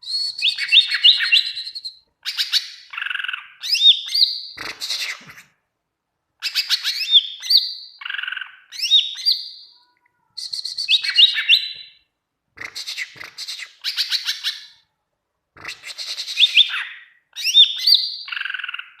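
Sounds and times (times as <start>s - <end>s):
bird singing rapid whistles: 0.0s - 5.4s, 6.4s - 9.7s, 10.4s - 12.0s, 15.7s - 19.0s.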